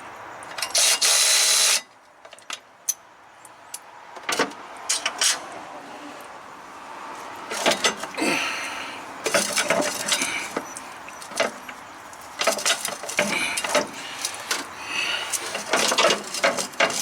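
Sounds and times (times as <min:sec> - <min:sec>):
metal tools clinking and rattling: 0:09.2 - 0:14.7, 0:15.3 - 0:17.0.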